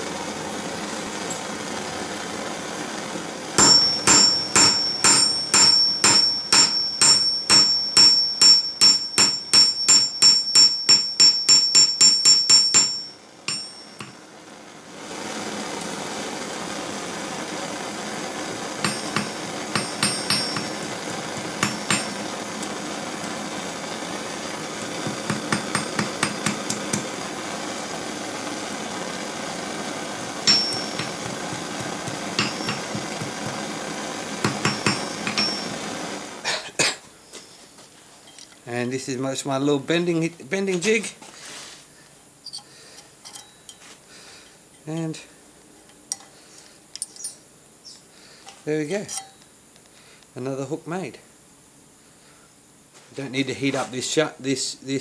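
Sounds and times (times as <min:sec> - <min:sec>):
steady hiss: 0:00.0 - 0:55.0
hammer striking metal on anvil: 0:03.6 - 0:14.2, 0:18.8 - 0:22.3, 0:24.8 - 0:27.1, 0:30.2 - 0:33.7, 0:34.4 - 0:35.9, 0:49.0 - 0:49.4.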